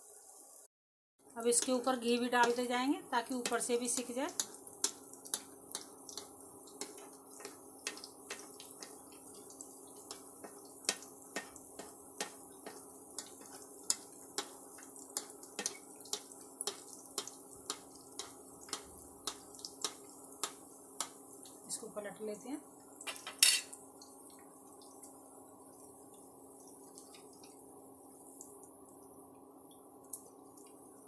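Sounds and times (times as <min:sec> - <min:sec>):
ghee popping and crackling: 0:01.5 - 0:21.7.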